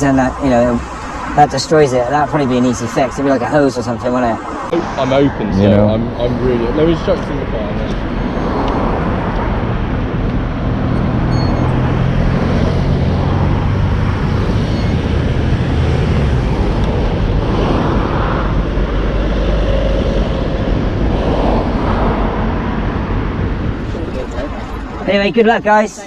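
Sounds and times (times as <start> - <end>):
road traffic noise: 0.0 - 26.0
vehicle engine humming: 0.0 - 26.0.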